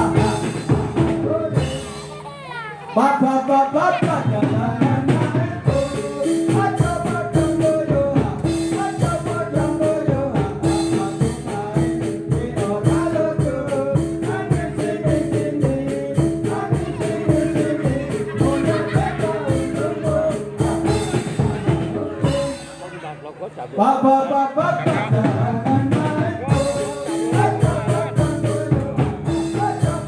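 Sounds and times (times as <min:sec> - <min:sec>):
music with fast percussion beat: 0:00.0 - 0:02.3, 0:03.8 - 0:23.0, 0:24.6 - 0:30.0
pitch-bending melody: 0:13.9 - 0:24.9.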